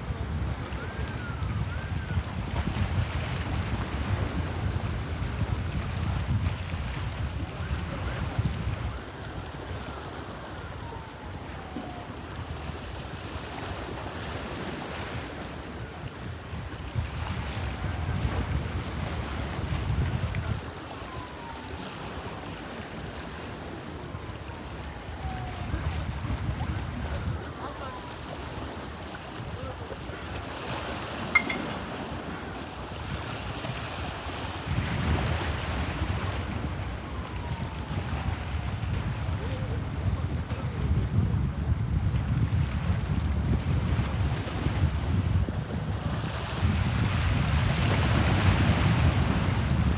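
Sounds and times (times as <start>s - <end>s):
wind rumbling on microphone: 0.0s - 23.3s, 24.0s - 49.9s
waves washing: 27.0s - 36.1s
short sharp click: 31.4s - 31.8s.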